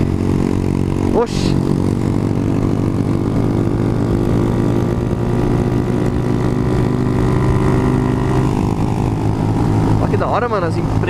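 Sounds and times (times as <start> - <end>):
motorcycle engine cruising: 0.0 - 11.0
wind noise: 0.0 - 11.0.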